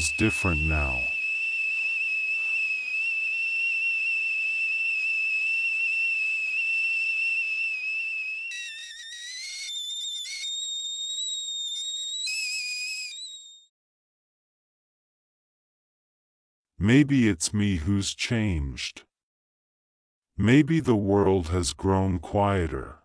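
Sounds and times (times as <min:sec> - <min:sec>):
kettle whistling: 0:00.0 - 0:13.7.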